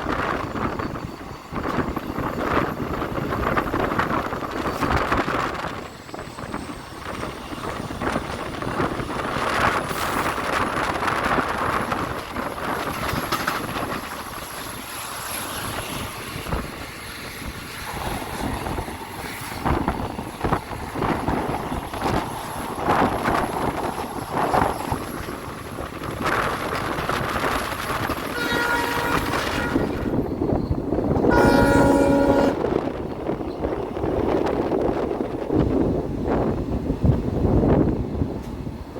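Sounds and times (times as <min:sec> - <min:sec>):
train wheels clattering on track: 0:00.0 - 0:38.9
locomotive horn: 0:28.3 - 0:30.2, 0:31.3 - 0:32.8.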